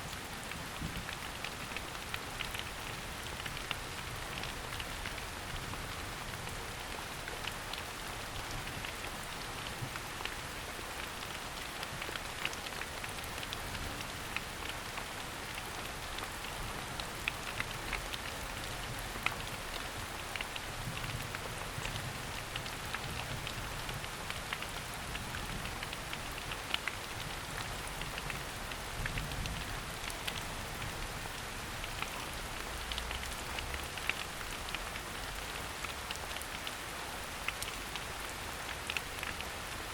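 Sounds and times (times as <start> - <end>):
rain falling on a forest: 0.0 - 39.9.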